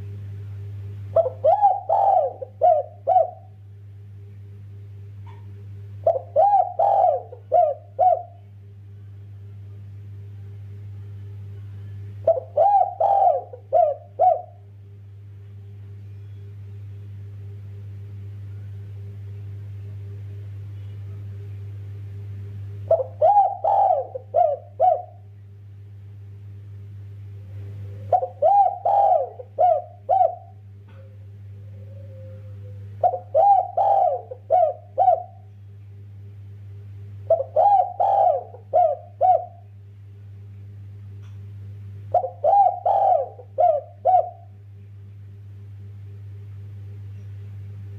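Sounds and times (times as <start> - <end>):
steady low hum: 0.0 - 47.9
dove cooing: 1.1 - 3.6, 5.2 - 8.5, 12.2 - 14.7, 22.8 - 25.3, 27.5 - 35.5, 37.2 - 39.7, 42.1 - 44.6.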